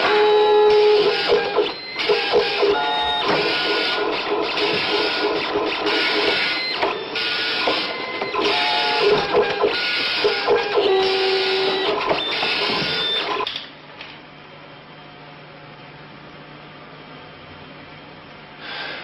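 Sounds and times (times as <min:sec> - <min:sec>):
dot-matrix printer buzzing: 0:00.0 - 0:13.5.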